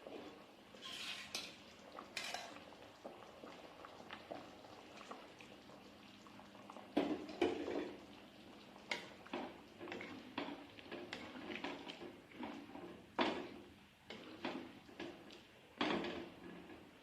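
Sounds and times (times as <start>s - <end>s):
cutlery scraping a plate: 0.8s - 1.6s, 2.2s - 2.6s.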